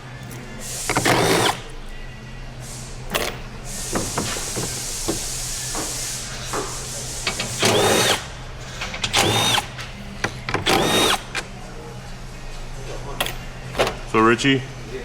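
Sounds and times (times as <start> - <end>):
power tool whining: 0.7 - 1.7, 7.4 - 8.3, 9.1 - 9.8, 10.6 - 11.4.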